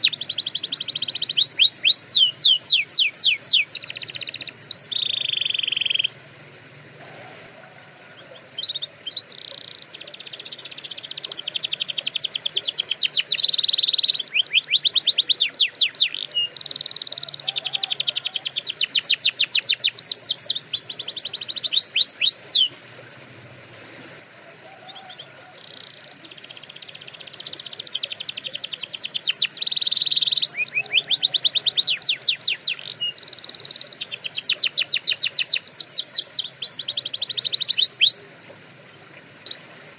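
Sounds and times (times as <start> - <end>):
canary singing rapid trills: 0.0 - 6.3, 8.2 - 24.0, 24.9 - 38.3.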